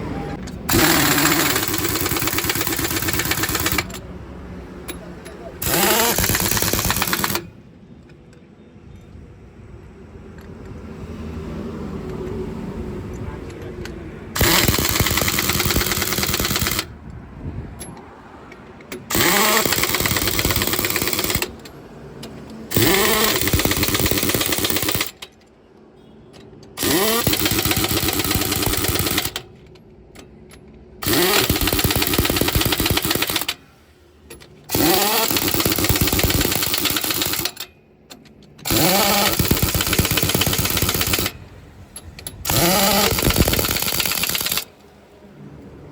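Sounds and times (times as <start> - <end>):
pneumatic impact wrench: 0.7 - 4.0, 5.6 - 7.5, 14.4 - 16.9, 18.9 - 21.7, 22.7 - 25.4, 26.7 - 29.6, 31.0 - 33.7, 34.3 - 37.7, 38.6 - 44.8.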